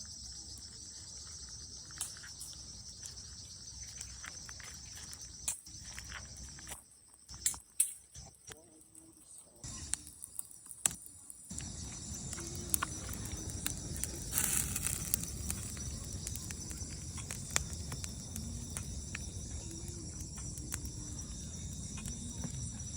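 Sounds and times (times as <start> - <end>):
insects trilling: 0.0 - 22.9
bonfire crackling and popping: 1.5 - 22.9
fire hiss: 9.6 - 22.9.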